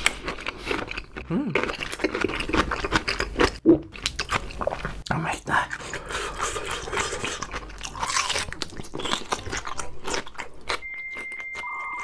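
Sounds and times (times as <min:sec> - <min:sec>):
wet mouth sounds: 0:00.0 - 0:11.6
chewing and crunching food: 0:00.0 - 0:12.0
high electronic tone: 0:10.8 - 0:12.0.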